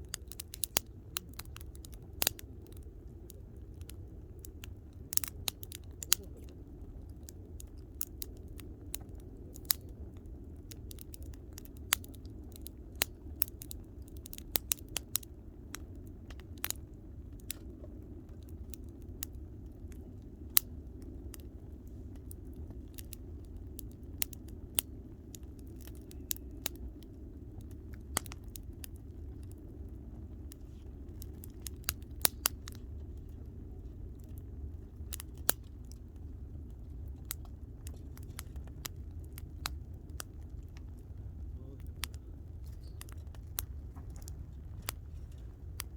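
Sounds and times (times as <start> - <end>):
campfire crackling: 0.0 - 45.9
low rumble: 15.4 - 45.9.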